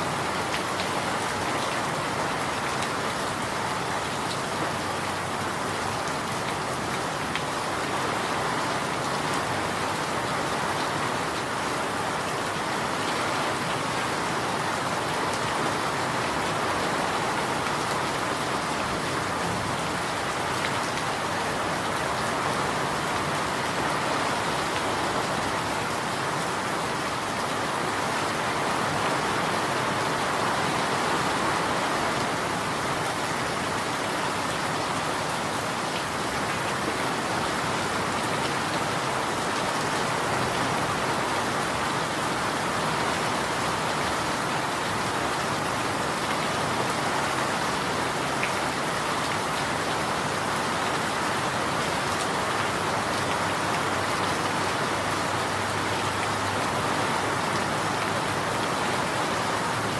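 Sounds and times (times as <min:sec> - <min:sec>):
rain pattering on surfaces: 0:00.0 - 0:59.9.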